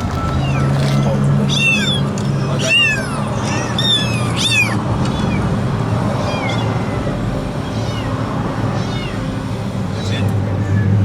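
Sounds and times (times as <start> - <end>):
kitten meowing: 0.2 - 5.4.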